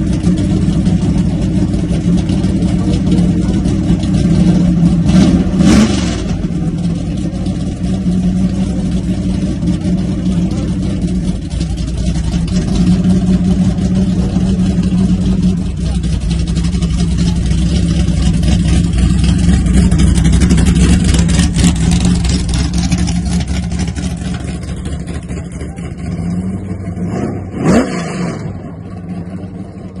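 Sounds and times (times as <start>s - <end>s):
car engine rumbling: 0.0s - 30.0s
short rising engine rev: 26.2s - 28.8s.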